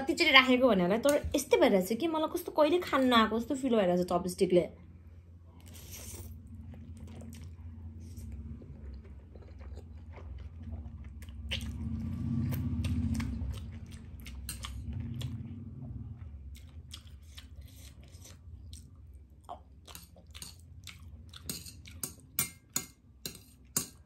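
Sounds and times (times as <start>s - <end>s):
low steady hum: 0.0s - 24.0s
person chewing noodles: 5.5s - 22.4s.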